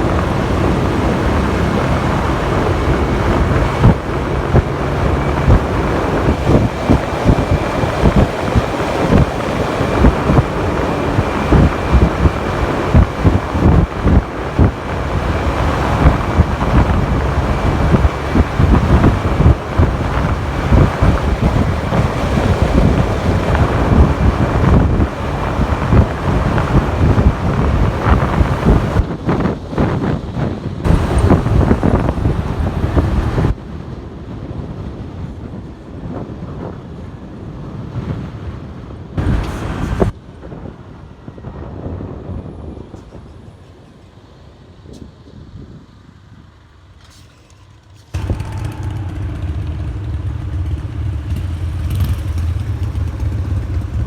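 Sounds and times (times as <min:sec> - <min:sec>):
motorcycle engine: 0:00.0 - 0:29.0, 0:30.8 - 0:33.6, 0:48.1 - 0:54.0
wind buffeting microphone: 0:00.0 - 0:46.9, 0:48.1 - 0:54.0
road noise: 0:00.0 - 0:54.0
traffic: 0:00.0 - 0:54.0.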